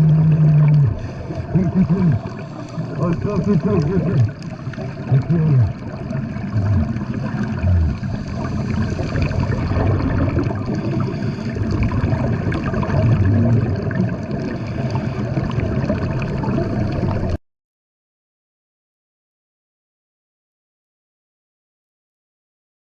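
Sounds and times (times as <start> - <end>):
water rushing and gurgling: 0.0 - 17.4
low rumble: 5.1 - 11.0.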